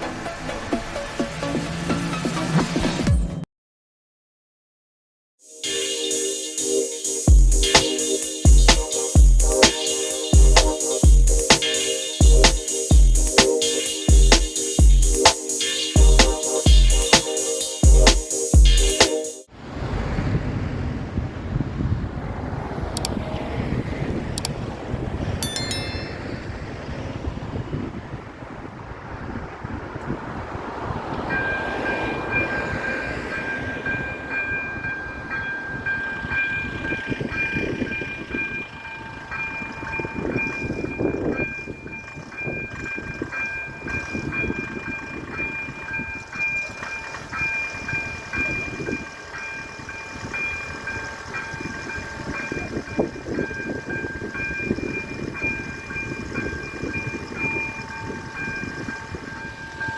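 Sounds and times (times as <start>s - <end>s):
level crossing warning bells: 5.5s - 19.4s, 25.4s - 27.0s, 29.7s - 59.9s
train rumble: 19.8s - 59.9s.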